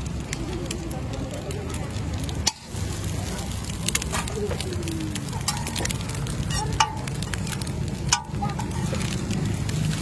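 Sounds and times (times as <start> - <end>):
eggs sizzling on griddle: 0.0 - 10.0
metal spatula scraping griddle: 5.2 - 9.2.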